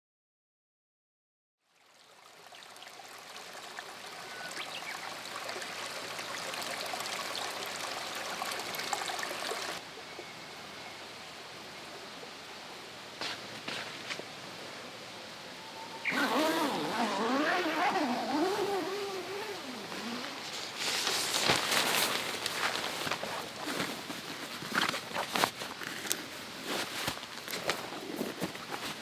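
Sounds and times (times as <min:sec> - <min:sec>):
bubbling water: 0:02.0 - 0:09.8.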